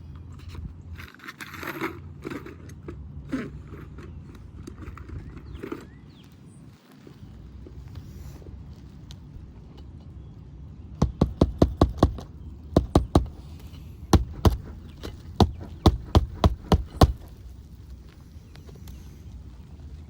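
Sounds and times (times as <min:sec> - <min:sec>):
hammer driving roofing nails: 0:11.0 - 0:17.4.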